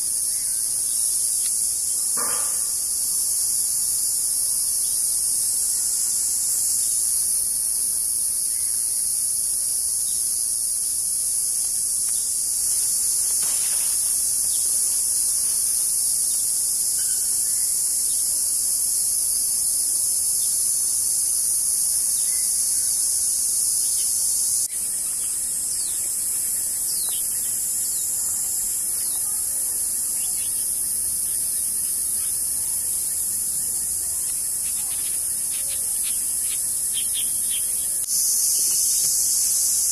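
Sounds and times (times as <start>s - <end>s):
insect chorus buzzing: 0.0s - 39.9s.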